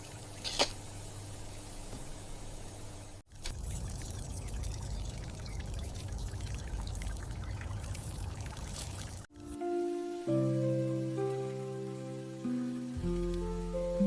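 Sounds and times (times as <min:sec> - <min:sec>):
water pouring and trickling: 0:03.3 - 0:09.6.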